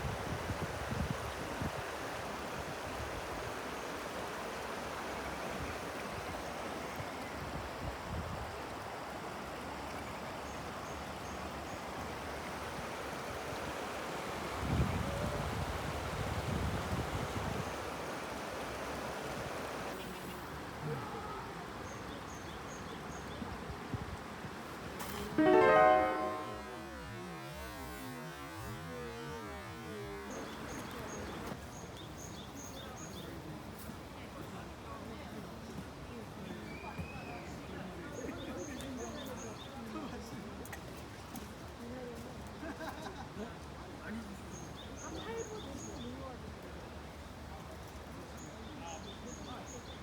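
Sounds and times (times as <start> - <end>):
flowing water: 0.0 - 32.5
wind: 0.0 - 50.0.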